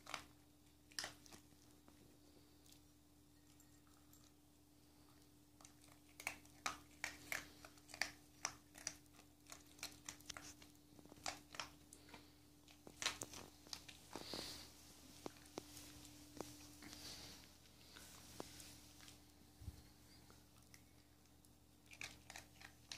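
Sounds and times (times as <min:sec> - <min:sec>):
dog crunching dry kibble: 0:00.0 - 0:02.0, 0:05.6 - 0:19.3, 0:20.6 - 0:22.9.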